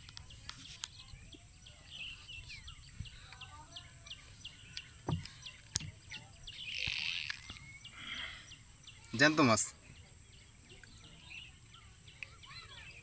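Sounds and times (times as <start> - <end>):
small bird chirping: 0.0 - 13.0
soft thump on bamboo floor: 5.0 - 6.0.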